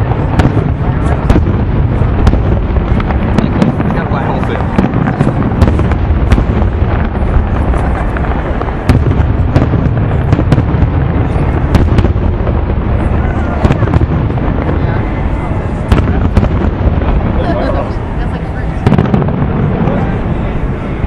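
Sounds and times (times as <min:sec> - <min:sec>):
fireworks bursting: 0:00.0 - 0:21.0
loud firework boom: 0:00.0 - 0:21.0
sharp firework cracks: 0:00.0 - 0:21.0.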